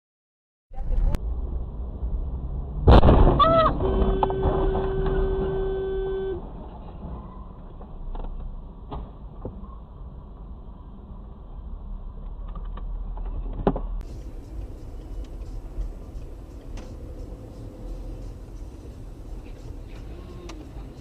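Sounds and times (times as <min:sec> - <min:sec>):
car engine rumble: 0:00.7 - 0:21.0
loud sudden bang: 0:02.8 - 0:05.8
car horn held: 0:03.4 - 0:06.5.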